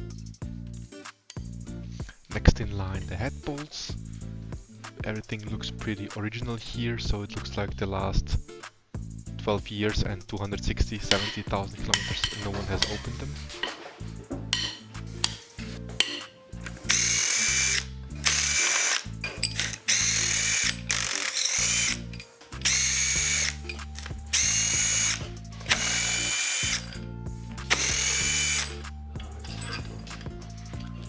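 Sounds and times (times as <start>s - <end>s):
cordless power tool whining: 11.1s - 30.9s.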